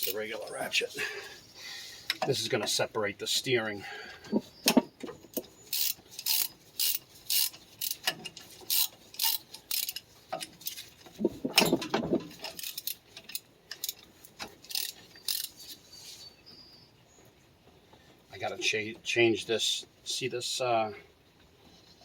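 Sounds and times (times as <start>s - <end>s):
ratchet wrench clicking: 5.7s - 10.0s, 12.5s - 14.0s, 14.6s - 15.6s
heavy clunk: 11.4s - 12.3s.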